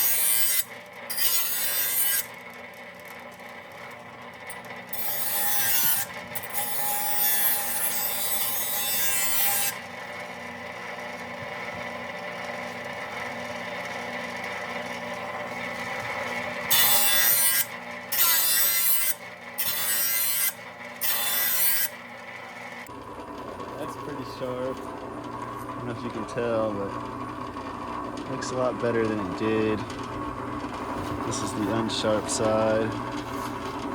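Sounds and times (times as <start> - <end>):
grinder sharpening blade: 0.0 - 2.4, 4.5 - 9.8, 16.7 - 22.0.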